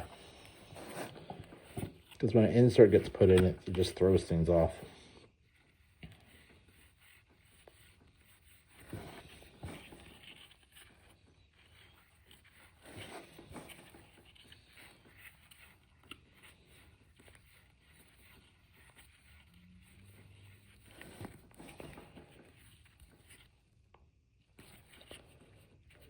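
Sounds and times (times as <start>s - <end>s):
card scrapes: 0.0s - 23.6s, 24.5s - 26.0s
trading cards rustling: 0.0s - 23.6s.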